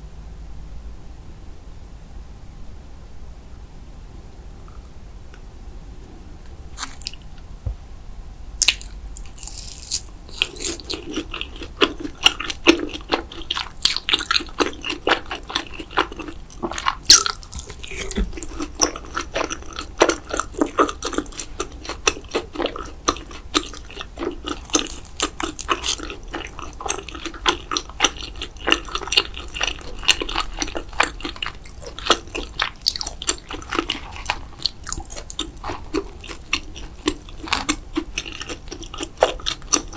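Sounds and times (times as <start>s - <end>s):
person chewing with wet mouth clicks: 8.6s - 39.9s.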